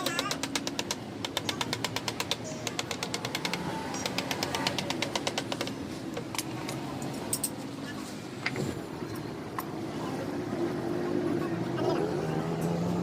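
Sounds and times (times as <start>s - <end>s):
rapid regular tapping clicks: 0.0s - 5.8s.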